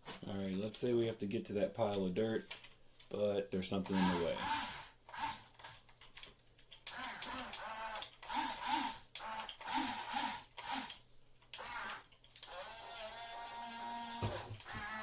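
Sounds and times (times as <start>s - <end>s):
toy motors whining: 3.9s - 5.8s, 6.8s - 15.0s.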